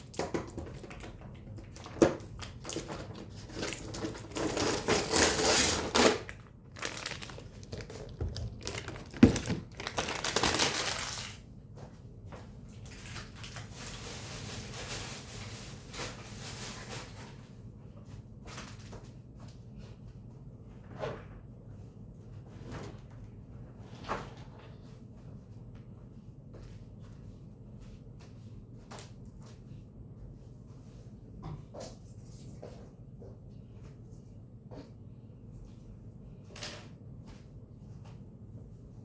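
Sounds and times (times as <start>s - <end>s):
plastic packaging crinkling: 1.7s - 11.4s, 12.9s - 17.2s.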